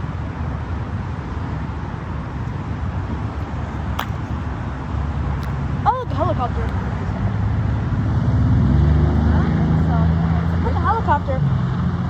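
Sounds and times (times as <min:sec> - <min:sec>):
outdoor rumble and hiss: 0:00.0 - 0:12.0
sharp click: 0:03.9 - 0:04.2.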